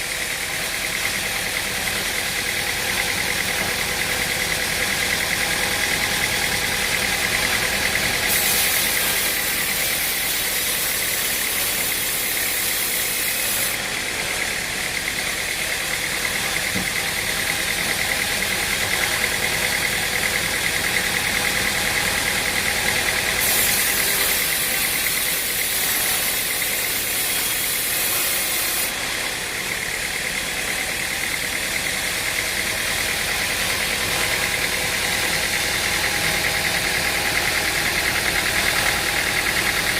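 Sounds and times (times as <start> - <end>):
stump grinder engine running: 0.0 - 39.9.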